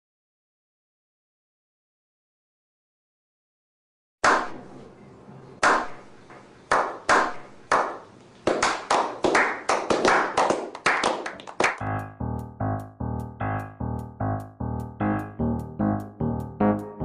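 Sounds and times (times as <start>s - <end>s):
sharp cracks: 4.2s - 4.6s, 5.6s - 11.8s.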